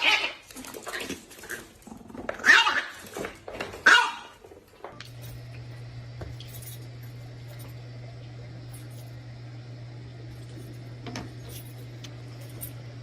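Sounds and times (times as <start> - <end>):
dog barking: 2.4 - 3.0, 3.8 - 4.4
steady low hum: 4.5 - 13.0.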